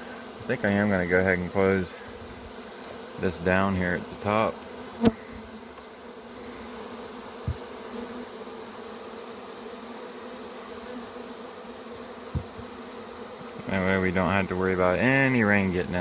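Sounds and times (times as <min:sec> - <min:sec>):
bee swarm buzzing: 0:00.0 - 0:16.0
dull knock: 0:12.3 - 0:12.7.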